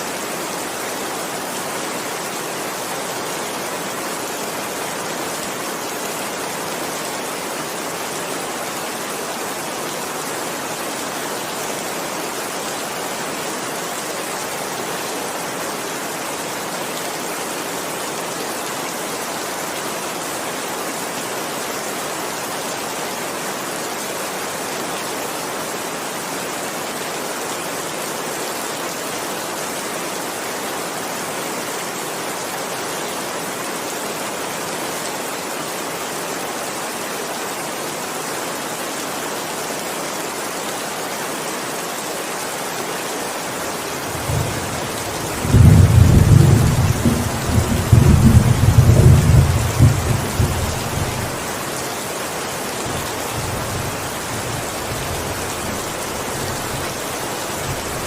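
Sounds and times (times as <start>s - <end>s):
heavy rain hissing: 0.0s - 58.0s
rolling thunderclap: 44.2s - 51.1s.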